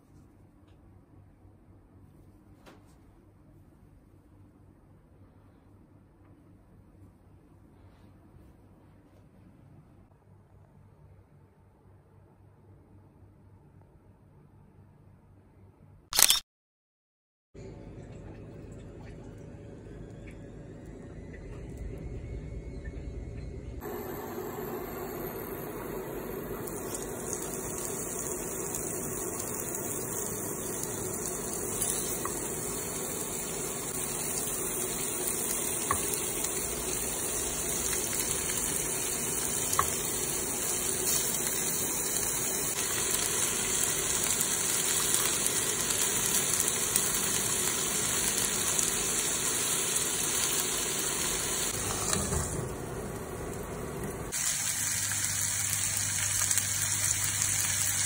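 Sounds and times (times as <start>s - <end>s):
food sizzling in a frying pan: 23.8s - 58.0s.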